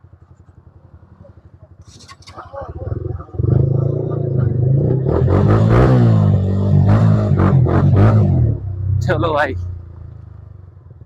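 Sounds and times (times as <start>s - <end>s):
motorcycle engine revving: 0.0s - 11.0s
faint voices: 1.1s - 4.8s.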